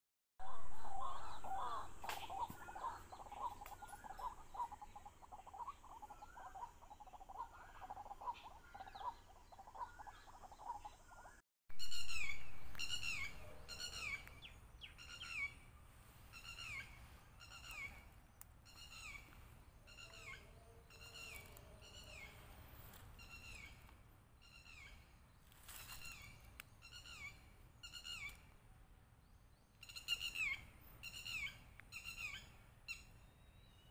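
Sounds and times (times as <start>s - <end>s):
birds chirping: 0.4s - 28.6s.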